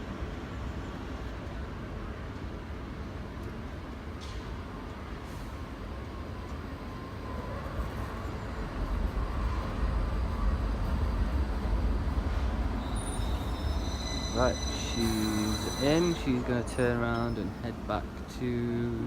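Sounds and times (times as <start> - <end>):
train rumble: 0.0 - 19.0
faint wheel squeal: 12.8 - 17.7.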